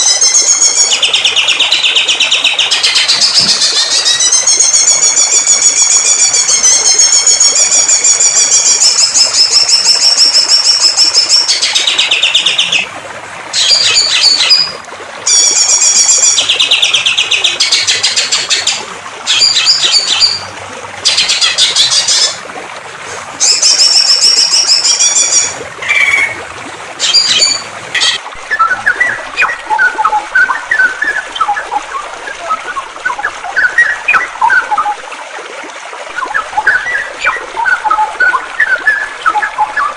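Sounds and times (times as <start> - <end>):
soft bird twittering: 13.6 - 20.5, 27.0 - 34.9
songbird singing trilled phrases: 13.6 - 20.5, 27.0 - 31.6.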